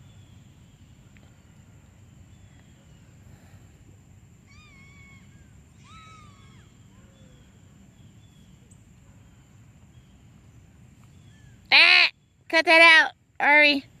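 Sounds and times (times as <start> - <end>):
gull mewing cries: 4.5 - 7.5.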